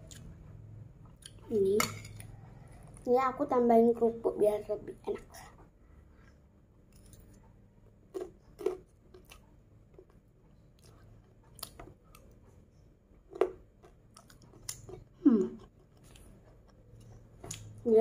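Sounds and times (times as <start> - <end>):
child chewing crunchy crackers: 6.2 - 18.0.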